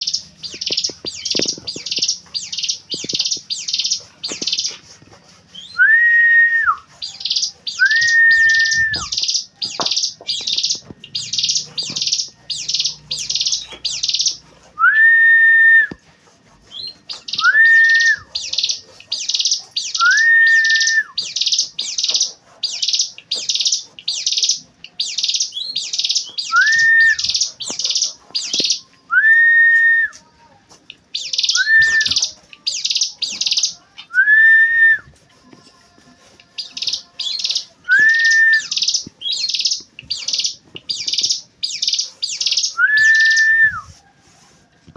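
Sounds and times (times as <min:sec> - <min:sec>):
bird chirping rapidly: 0:00.0 - 0:04.9, 0:05.5 - 0:14.5, 0:16.6 - 0:28.9, 0:31.1 - 0:34.3, 0:36.6 - 0:43.8
bird whistling: 0:05.5 - 0:16.0, 0:16.6 - 0:30.3, 0:31.2 - 0:35.2, 0:36.6 - 0:44.0.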